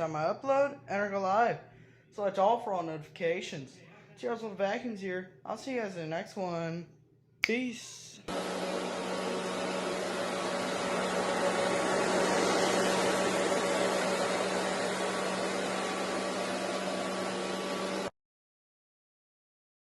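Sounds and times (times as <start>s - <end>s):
vacuum cleaner running: 8.3s - 18.2s.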